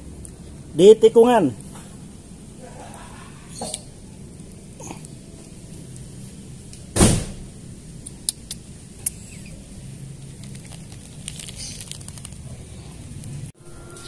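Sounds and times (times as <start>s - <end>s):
vehicle engine rumbling: 0.0s - 14.0s
loud thump: 7.0s - 7.4s.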